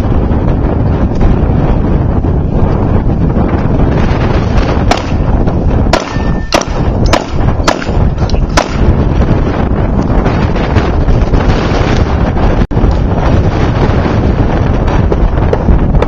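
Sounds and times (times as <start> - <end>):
wind buffeting microphone: 0.0 - 16.0
gunshots: 4.9 - 5.3, 5.9 - 9.0.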